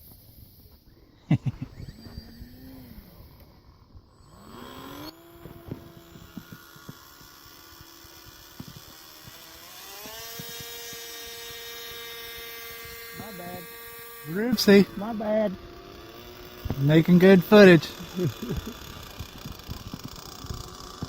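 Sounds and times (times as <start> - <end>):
model airplane motor whining: 0.0 - 21.0.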